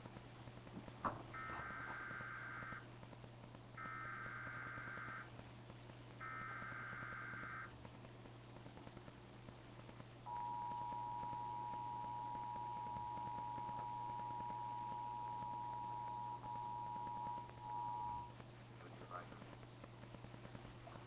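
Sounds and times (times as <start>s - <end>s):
screeching digital data bursts: 1.4s - 2.8s, 3.8s - 5.3s, 6.2s - 7.8s
two-tone attention signal: 10.3s - 18.3s.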